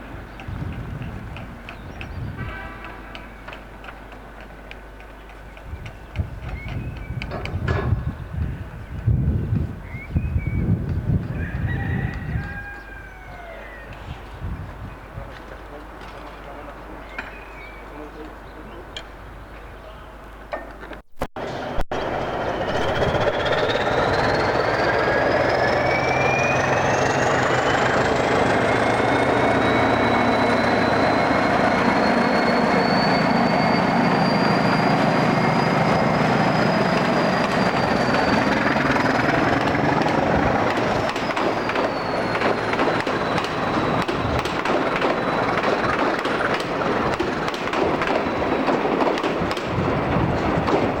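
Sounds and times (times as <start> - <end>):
train rumble: 0.0 - 20.8, 21.4 - 51.0
wheels clicking over rail joints: 0.1 - 9.1, 34.2 - 51.0
train whine: 21.4 - 51.0.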